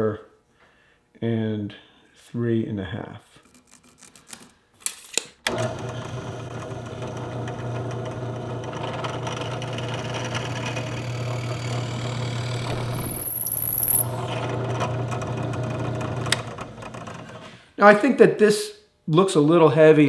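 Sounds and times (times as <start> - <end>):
electric drill boring wood: 5.5 - 17.5
clicks: 11.0 - 14.2
high-pitched whine: 11.1 - 14.2.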